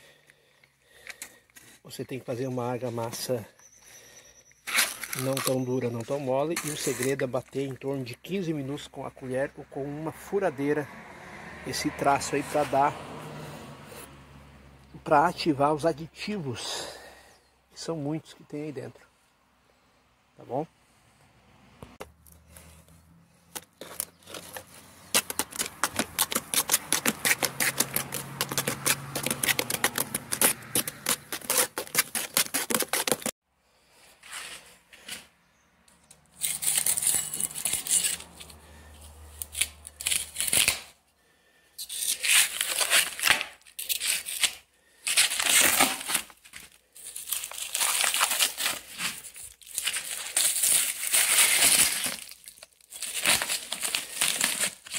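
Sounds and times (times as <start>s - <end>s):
trowel scraping mortar: 4.6s - 7.4s, 23.8s - 33.3s, 36.4s - 38.8s.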